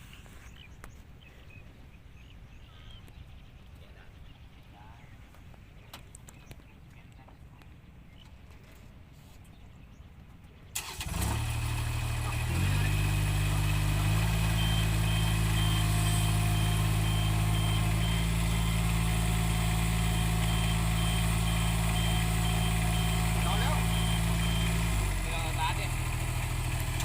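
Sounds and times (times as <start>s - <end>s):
vehicle engine starting: 10.7s - 27.0s
faint high beep: 14.4s - 24.9s.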